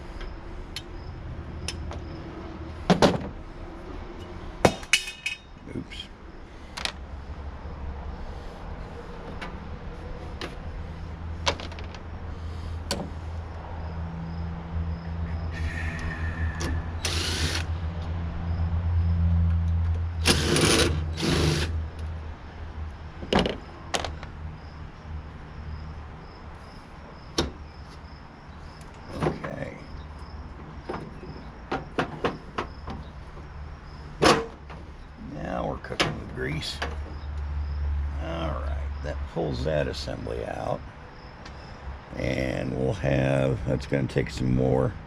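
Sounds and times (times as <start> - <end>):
noisy power tool bursts: 15.6 - 17.7, 20.2 - 21.8.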